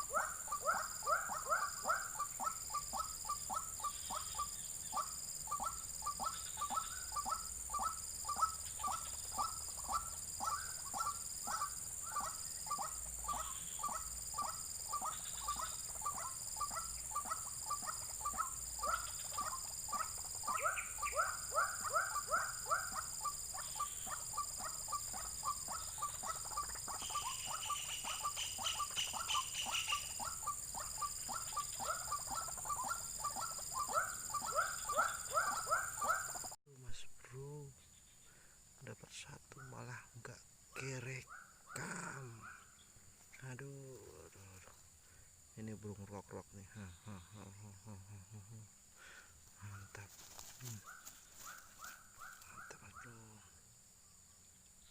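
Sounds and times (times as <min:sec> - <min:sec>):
waterhen calling: 0:00.0 - 0:36.6.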